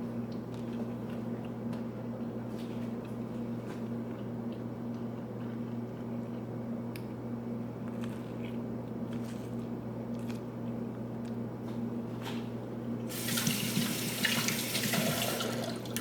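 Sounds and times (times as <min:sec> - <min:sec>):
steady low hum: 0:00.0 - 0:16.0
person chewing food: 0:00.3 - 0:07.1, 0:07.8 - 0:11.4.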